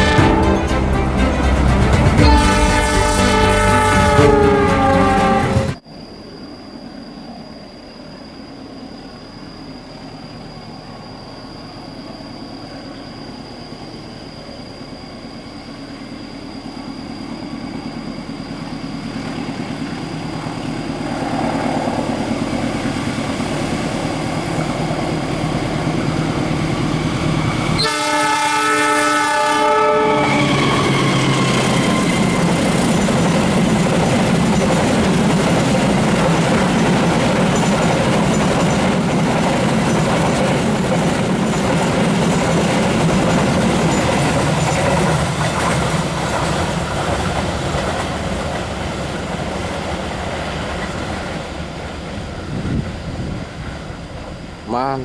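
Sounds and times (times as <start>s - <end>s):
locomotive horn: 0.0s - 5.8s, 27.7s - 32.5s
train rumbling on rails: 0.0s - 55.0s.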